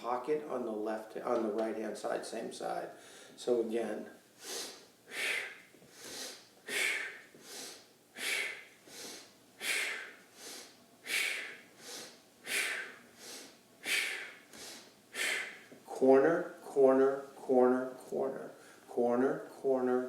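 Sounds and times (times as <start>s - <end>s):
man breathing hard: 3.0s - 3.4s, 4.4s - 15.7s.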